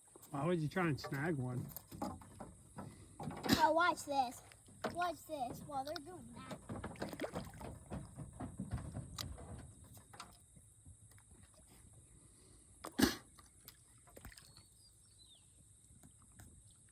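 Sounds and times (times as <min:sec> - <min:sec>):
fish splashing at water surface: 0:12.8 - 0:14.8.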